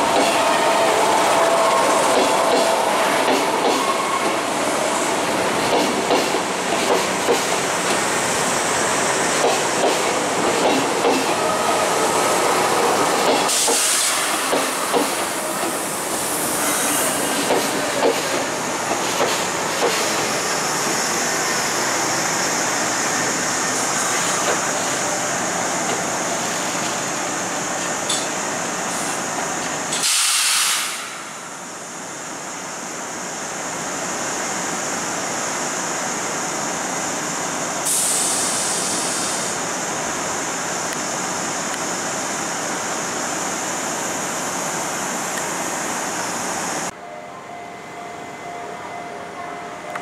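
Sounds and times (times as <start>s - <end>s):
electric trains running: 0.0s - 47.0s
compressed-air hiss: 11.8s - 18.8s, 29.9s - 31.5s, 37.8s - 42.5s.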